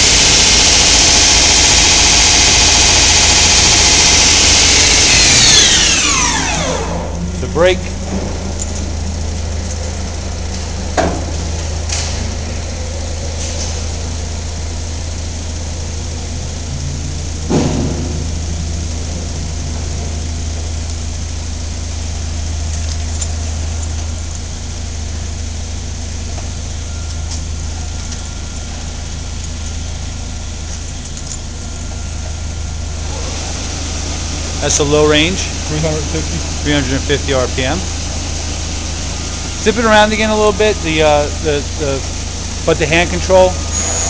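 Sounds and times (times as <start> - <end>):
low machinery hum: 0.0 - 44.0
sharp clunk: 17.5 - 18.2.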